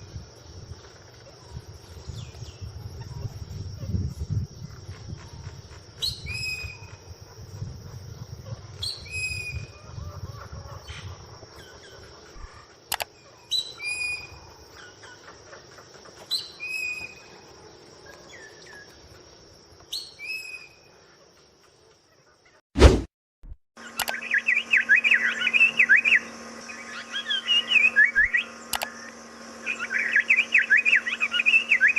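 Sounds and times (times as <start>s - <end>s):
bird calling: 4.6s - 19.2s, 23.8s - 31.9s
sharp click: 12.9s - 13.1s, 24.0s - 24.2s, 28.7s - 29.0s.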